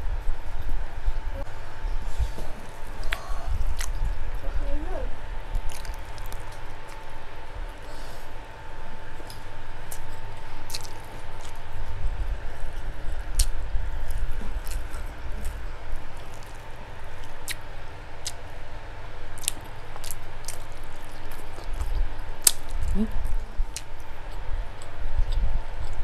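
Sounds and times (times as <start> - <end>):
wet chewing: 2.2 - 4.4, 5.5 - 8.0, 9.1 - 18.5, 19.4 - 26.0.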